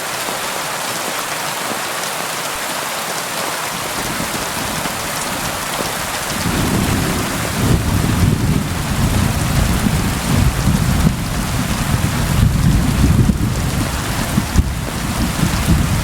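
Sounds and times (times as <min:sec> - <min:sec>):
steady rain: 0:00.0 - 0:16.0
rolling thunder: 0:04.1 - 0:16.0.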